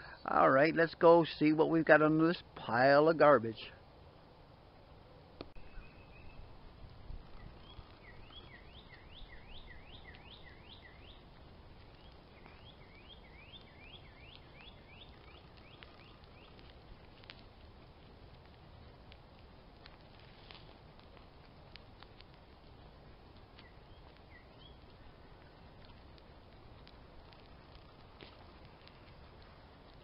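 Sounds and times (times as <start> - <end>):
faint songbird whistling: 5.6 - 6.5, 7.3 - 11.3, 11.9 - 16.6, 23.6 - 25.6.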